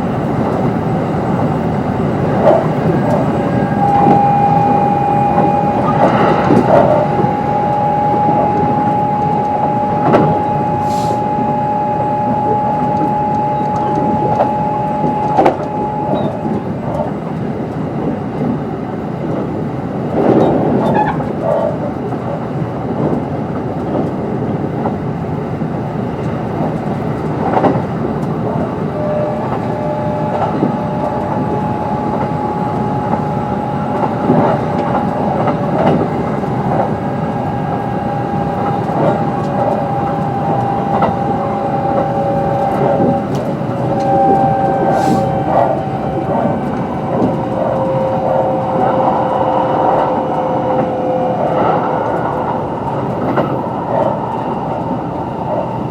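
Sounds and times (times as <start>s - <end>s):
wheels rumbling on rail: 0.0s - 55.9s
traction motor whine: 1.9s - 17.2s, 28.8s - 55.9s.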